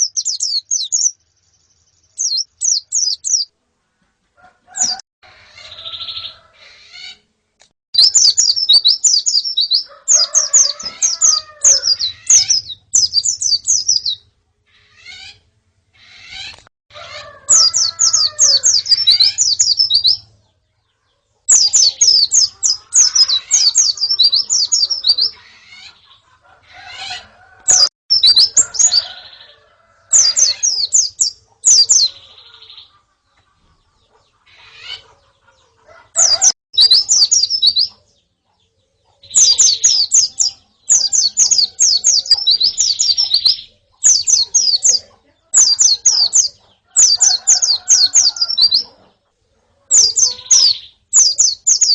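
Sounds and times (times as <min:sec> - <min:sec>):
high downward-sliding bird chirps: 0:00.0 - 0:03.5, 0:08.0 - 0:15.4, 0:17.2 - 0:20.4, 0:21.4 - 0:29.5, 0:30.1 - 0:33.0, 0:36.2 - 0:38.1, 0:39.2 - 0:48.9, 0:49.9 - 0:51.9.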